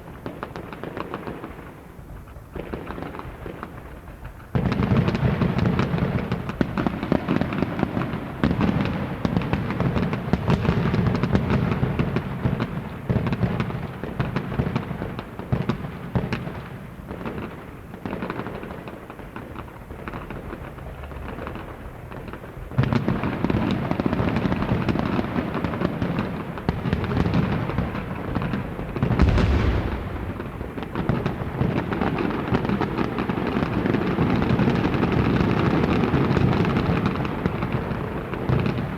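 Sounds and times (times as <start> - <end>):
deep boom: 29.1 - 31.5.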